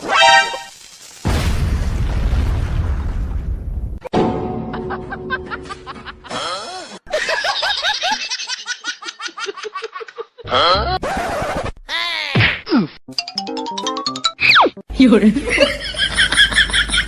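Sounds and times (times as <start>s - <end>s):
background music: 13.1s - 15.5s.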